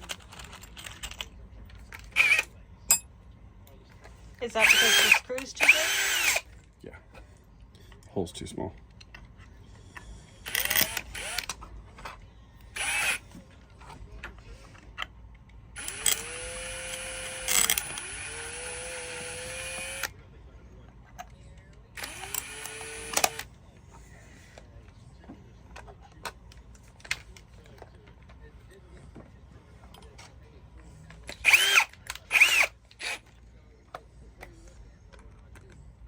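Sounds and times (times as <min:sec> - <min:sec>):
power drill spinning: 0:02.0 - 0:02.5, 0:04.4 - 0:06.5, 0:10.4 - 0:11.6, 0:12.7 - 0:13.3, 0:15.8 - 0:20.1, 0:22.0 - 0:23.5, 0:31.3 - 0:33.4.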